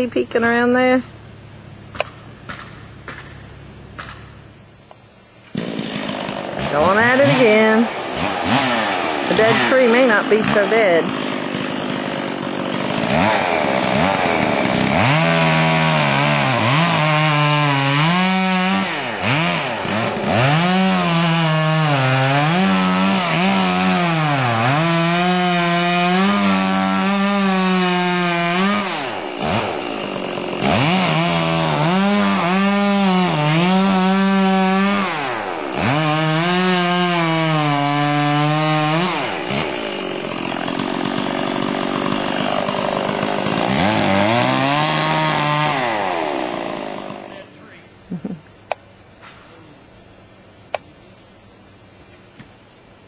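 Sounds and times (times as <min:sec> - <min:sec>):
chainsaw cutting wood: 0:01.9 - 0:04.4, 0:05.4 - 0:47.5.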